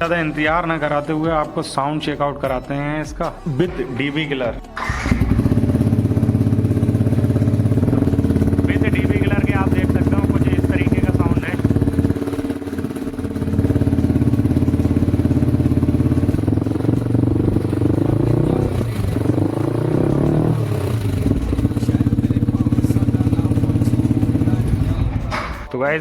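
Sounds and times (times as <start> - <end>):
motorcycle engine idling: 4.8 - 25.7
motorcycle engine revving: 4.8 - 25.7.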